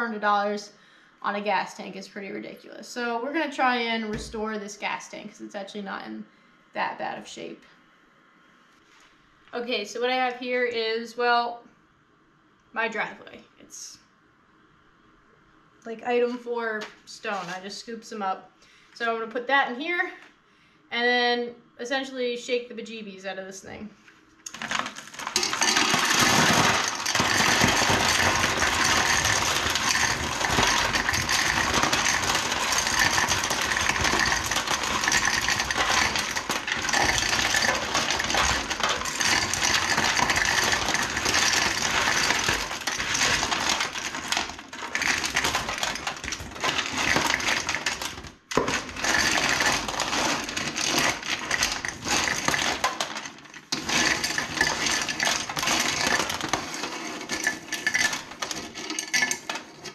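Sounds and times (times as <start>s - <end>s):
gravel rattling inside metal tank: 24.5s - 59.9s.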